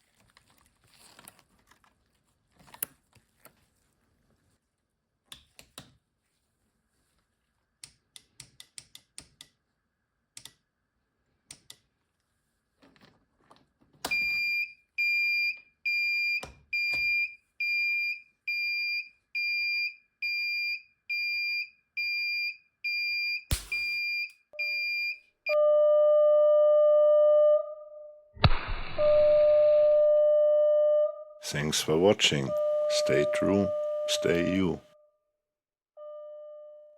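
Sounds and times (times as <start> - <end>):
sharp crack: 23.5 - 24.0, 28.4 - 29.3
high buzzer beeps: 29.0 - 34.9
low continuous buzzer tone: 32.4 - 34.5, 36.0 - 36.9.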